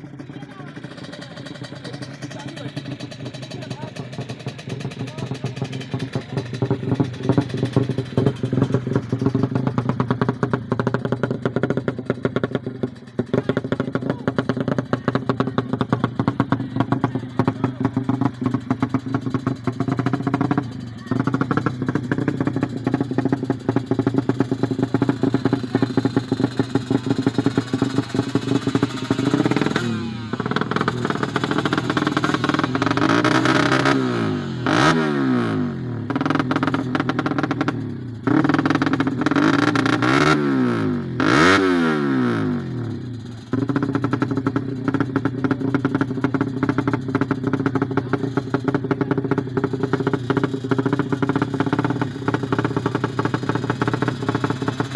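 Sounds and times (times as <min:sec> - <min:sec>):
small motorcycle engine revving: 0:13.2 - 0:54.9.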